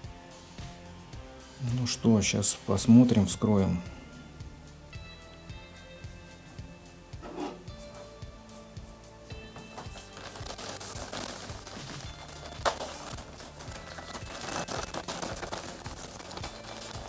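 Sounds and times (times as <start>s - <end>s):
quiet background music: 0.0s - 17.0s
packaging crinkling: 9.7s - 17.0s.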